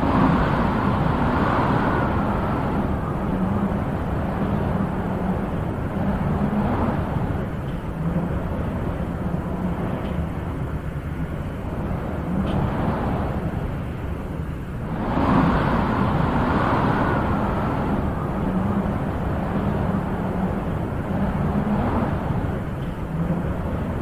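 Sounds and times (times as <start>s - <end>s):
wind blowing in gusts: 0.0s - 24.0s.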